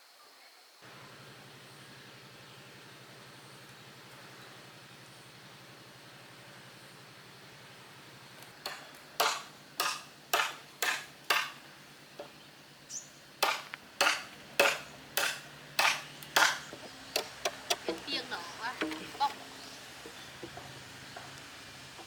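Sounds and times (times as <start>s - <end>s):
hand tool striking wood: 8.6s - 11.6s, 13.4s - 21.4s.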